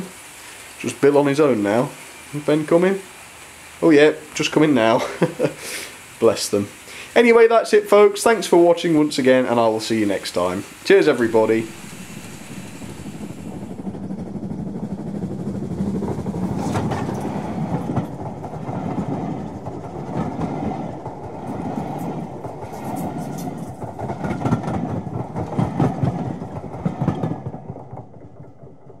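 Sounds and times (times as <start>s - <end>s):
railway carriages rumbling: 0.0s - 29.0s
wheels clacking over rail joints: 8.2s - 29.0s.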